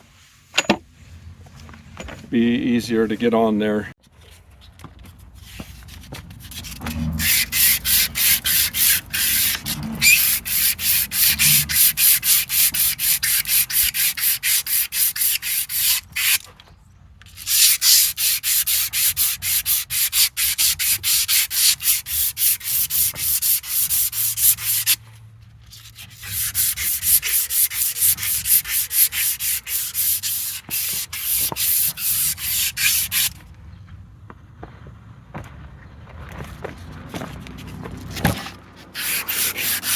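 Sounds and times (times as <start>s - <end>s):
emery cloth rubbing on steel shaft: 6.4s - 16.4s, 17.4s - 25.0s, 25.7s - 33.4s, 38.8s - 39.9s.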